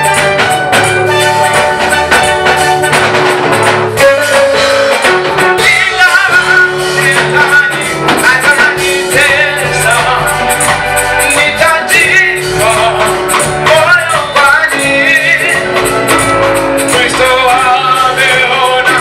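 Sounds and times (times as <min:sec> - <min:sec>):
church band playing gospel music: 0:00.0 - 0:19.0
drum kit: 0:00.0 - 0:19.0
people singing: 0:05.5 - 0:16.1, 0:16.8 - 0:19.0.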